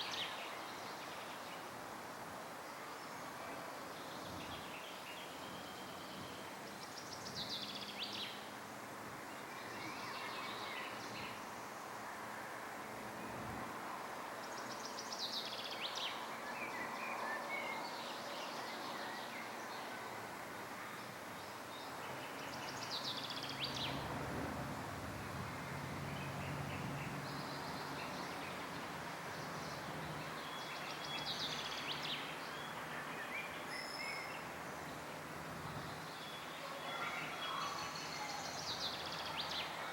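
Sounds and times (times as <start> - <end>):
steady background hiss: 0.0 - 39.9
songbirds singing trills: 3.2 - 8.5, 21.0 - 24.1, 25.1 - 36.6.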